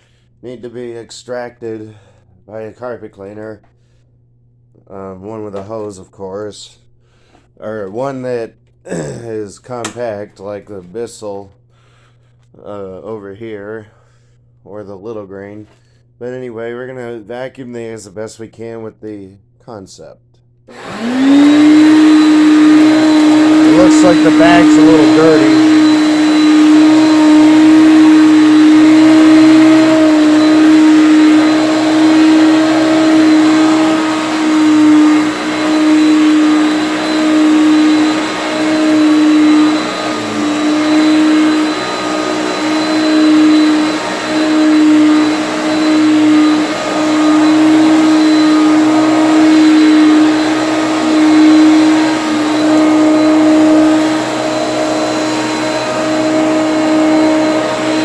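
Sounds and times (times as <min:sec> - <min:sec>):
vacuum cleaner motor whine: 0:20.7 - 0:58.0.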